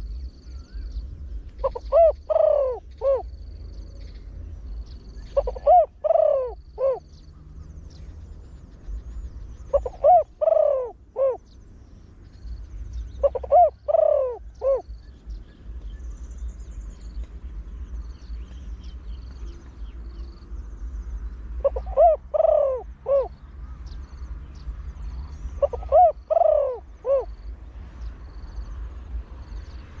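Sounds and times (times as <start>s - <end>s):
faint high bird chirps: 0.0s - 28.4s
dove cooing: 1.6s - 3.4s, 5.2s - 7.2s, 9.1s - 11.6s, 13.1s - 15.4s, 21.5s - 23.4s, 25.3s - 27.5s.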